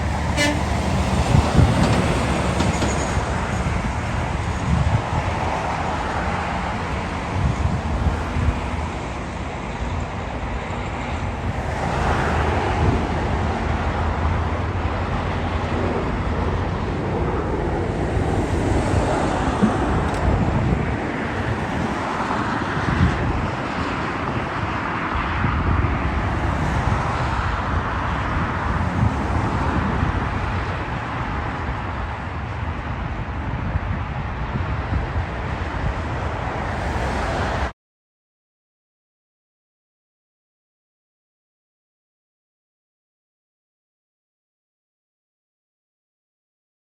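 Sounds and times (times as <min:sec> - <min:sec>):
distant engines roaring: 0:00.0 - 0:37.7
wind buffeting microphone: 0:00.0 - 0:37.7.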